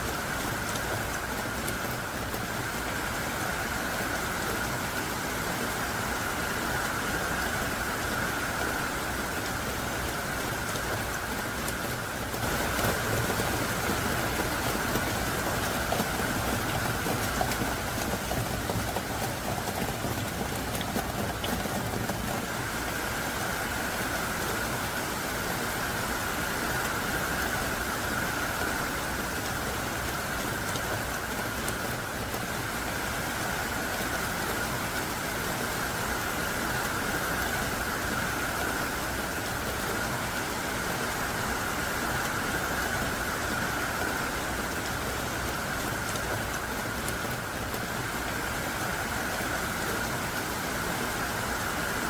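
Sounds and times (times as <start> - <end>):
heavy rain: 0.0 - 52.0.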